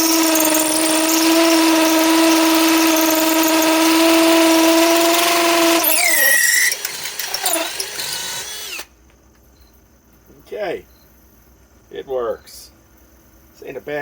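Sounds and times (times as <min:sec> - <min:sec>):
drill bit scraping: 0:00.0 - 0:08.9
hammer drill boring into brick: 0:00.0 - 0:08.9.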